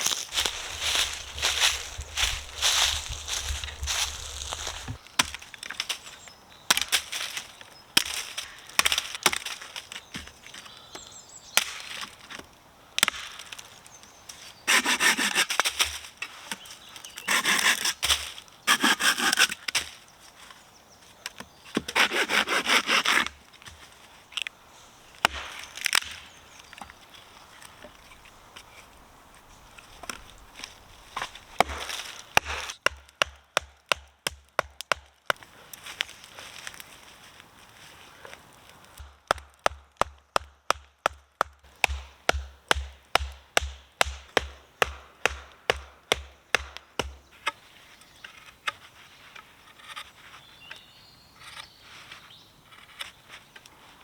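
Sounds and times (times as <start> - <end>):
sawing wood: 0.0 - 5.0, 14.7 - 15.8, 17.2 - 19.6, 21.8 - 23.4, 31.2 - 33.3.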